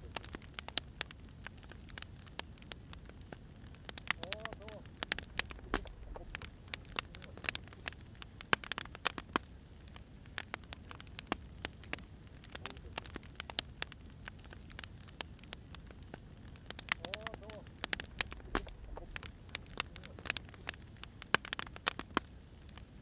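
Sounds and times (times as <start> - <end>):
firewood crackling and popping: 0.0 - 23.0
low rumble: 5.1 - 7.1, 17.9 - 19.8.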